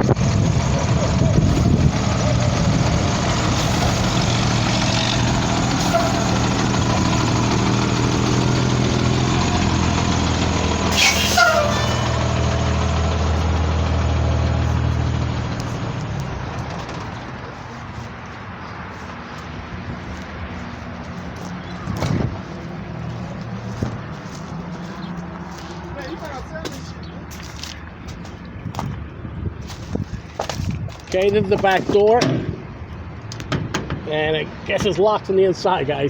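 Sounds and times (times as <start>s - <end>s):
diesel bus engine idling: 0.0s - 18.4s
falling squeal: 5.7s - 6.6s, 10.9s - 12.6s
sharp air hiss: 10.9s - 11.9s.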